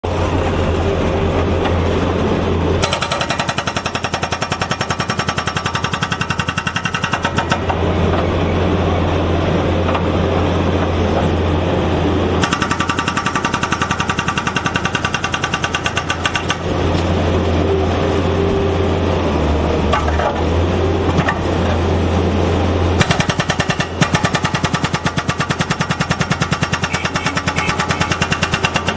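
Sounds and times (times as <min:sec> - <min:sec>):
loader engine running: 0:00.0 - 0:28.9
hydraulic breaker hammer pounding pavement: 0:02.8 - 0:08.3, 0:12.4 - 0:17.1, 0:19.9 - 0:20.5, 0:23.0 - 0:28.9.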